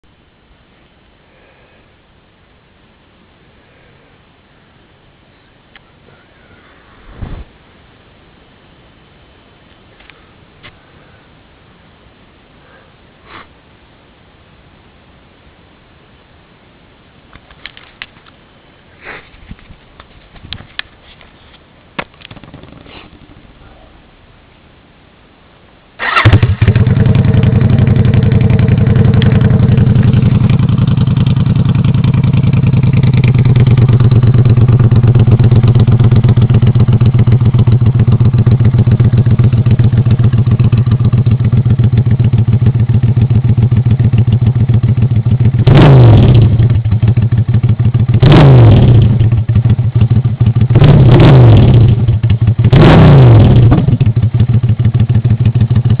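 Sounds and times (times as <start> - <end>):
engine exhaust idling and revving: 26.1 - 56.0.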